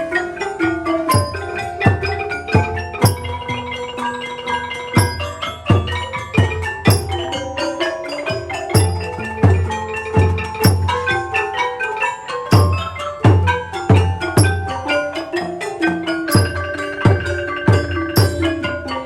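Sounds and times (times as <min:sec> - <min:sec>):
xylophone and gong melody: 0:00.0 - 0:19.0
deep drum beats: 0:00.9 - 0:03.7, 0:05.0 - 0:07.6, 0:08.3 - 0:11.4, 0:12.5 - 0:18.9.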